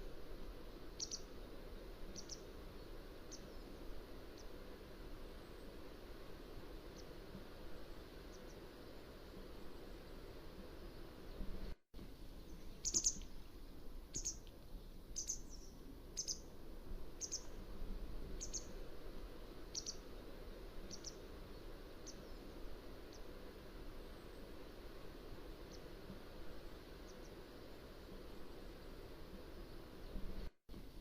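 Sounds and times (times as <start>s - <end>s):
background hiss: 0.0s - 31.0s
wagtail high calls: 1.0s - 1.3s, 12.8s - 13.3s, 14.1s - 14.4s, 15.2s - 16.5s, 17.2s - 17.5s, 19.7s - 20.0s.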